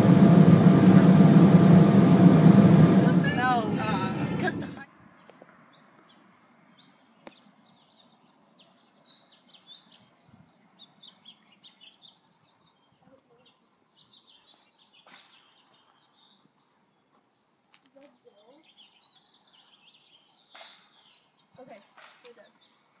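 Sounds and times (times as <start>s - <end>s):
small birds chirping: 5.1s - 23.0s.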